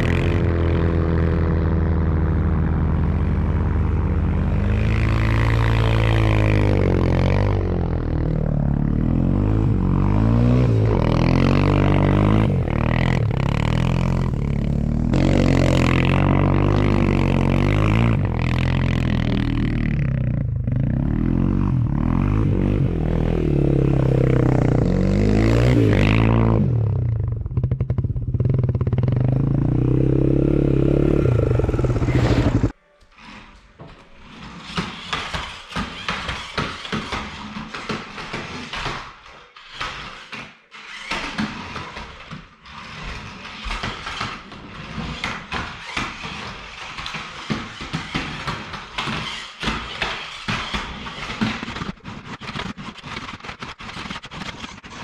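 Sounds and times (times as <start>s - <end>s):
off-road engine revving: 0.0s - 32.8s.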